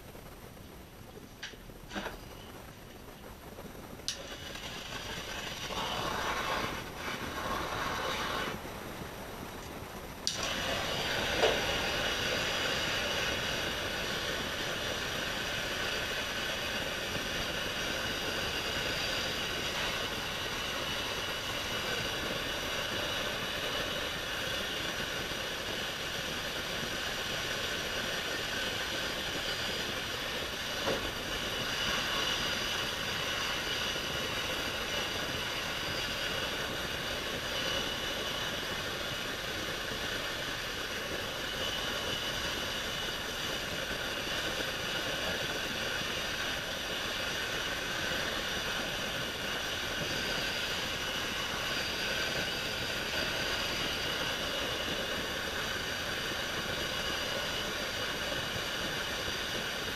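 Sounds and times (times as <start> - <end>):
heat gun blowing: 4.1 - 9.1, 10.2 - 59.9.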